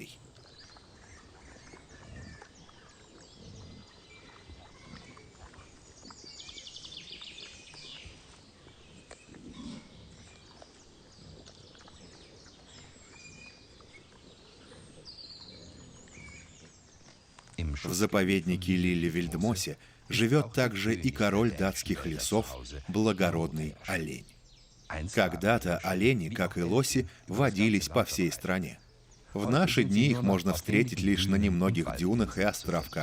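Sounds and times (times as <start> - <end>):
birds chirping: 0.0 - 33.0
wild boar grunting: 1.3 - 5.8, 8.9 - 17.0.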